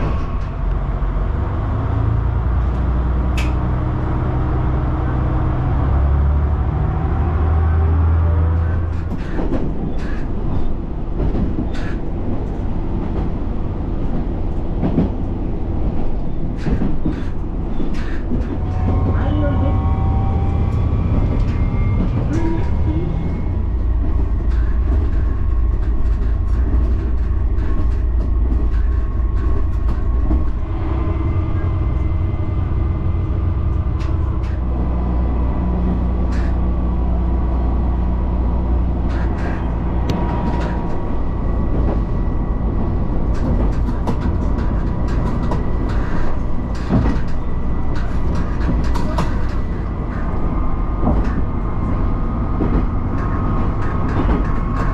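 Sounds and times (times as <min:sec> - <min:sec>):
diesel railcar engine rumble: 0:00.0 - 0:54.9
clicks from the track: 0:02.7 - 0:03.6, 0:43.3 - 0:54.9.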